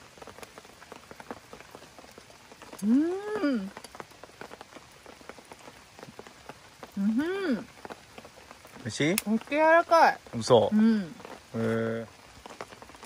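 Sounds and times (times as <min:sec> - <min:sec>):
rain ticking on a surface: 0:00.0 - 0:13.0
person humming mmm: 0:02.8 - 0:03.7.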